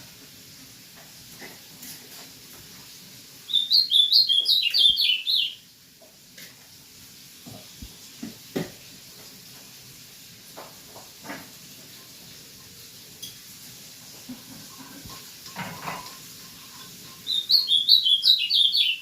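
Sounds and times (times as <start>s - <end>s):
songbird chirping: 3.5s - 5.6s, 17.2s - 19.0s.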